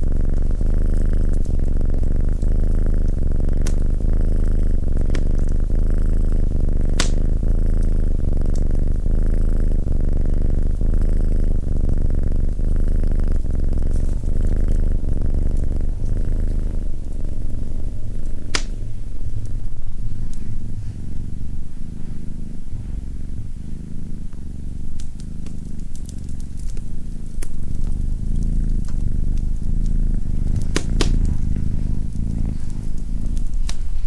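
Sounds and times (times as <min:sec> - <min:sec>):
cat purring: 0:00.0 - 0:34.0
sharp clicks: 0:06.9 - 0:07.2, 0:30.6 - 0:31.3.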